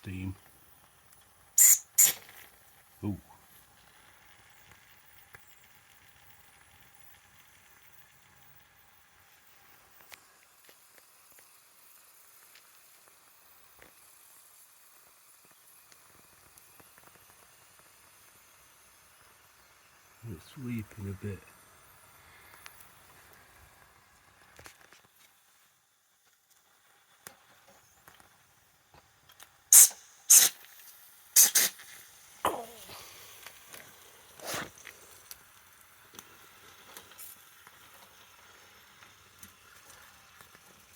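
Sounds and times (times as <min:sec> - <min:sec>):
model steam engine hissing: 0:01.5 - 0:02.4, 0:06.9 - 0:24.5, 0:29.7 - 0:40.9
small ticks and clicks: 0:03.6 - 0:19.8, 0:21.4 - 0:25.4, 0:33.3 - 0:40.9.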